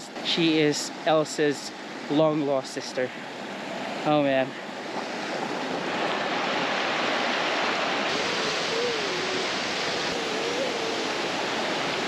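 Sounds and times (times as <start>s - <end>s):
rushing mountain stream: 0.0s - 12.0s.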